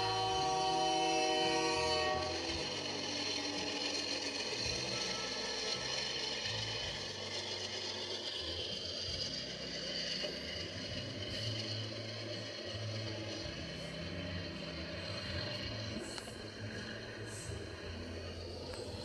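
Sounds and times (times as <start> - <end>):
freight train clattering past: 0.0 - 19.0.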